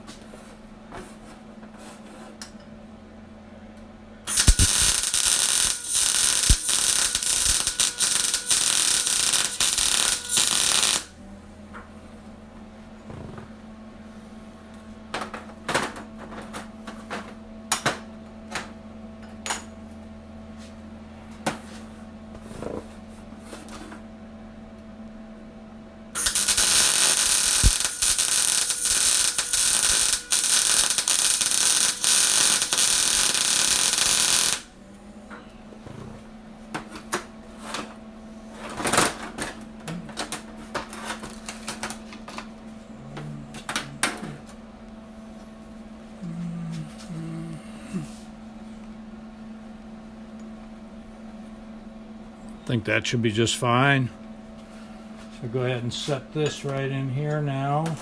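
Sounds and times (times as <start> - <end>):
arc welder crackling: 4.3 - 11.2, 26.2 - 35.0, 35.6 - 44.6.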